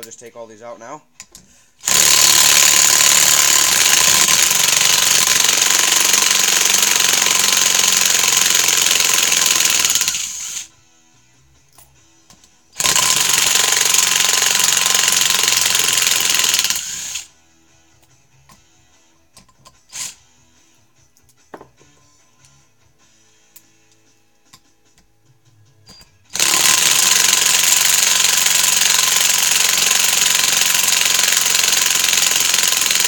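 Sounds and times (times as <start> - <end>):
impact driver hammering: 1.8 - 10.6, 12.8 - 17.2, 25.9 - 33.0.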